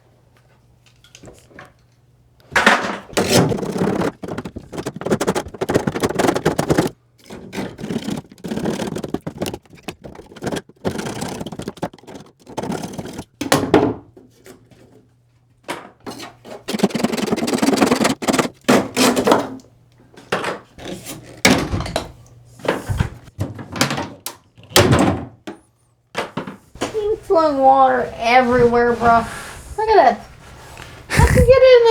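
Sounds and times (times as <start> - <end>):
thunks and knocks on pipe: 2.6 - 6.9
pipe scraping: 3.1 - 6.9, 7.6 - 13.3, 16.7 - 19.1.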